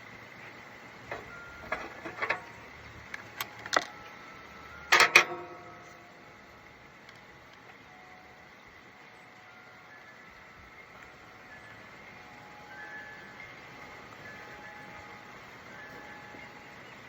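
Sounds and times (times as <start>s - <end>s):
metallic clanks: 1.1s - 4.0s, 4.9s - 6.0s
wrench clinking on metal bolt: 4.9s - 5.7s.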